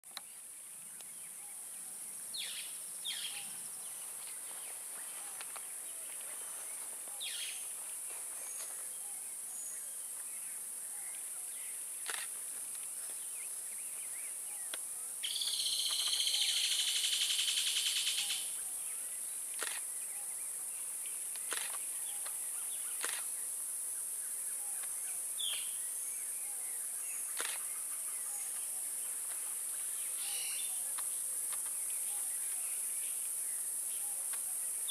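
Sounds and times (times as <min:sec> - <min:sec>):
birds calling: 0:00.2 - 0:16.9, 0:27.1 - 0:32.8.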